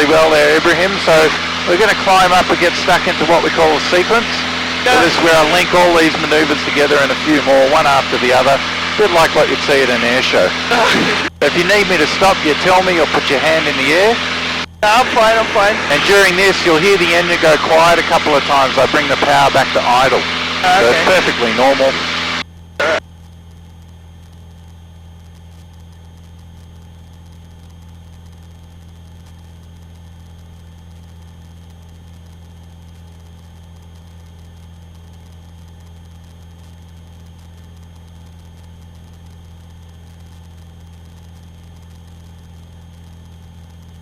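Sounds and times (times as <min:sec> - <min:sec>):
aircraft piston engine drone: 0:00.0 - 0:23.0.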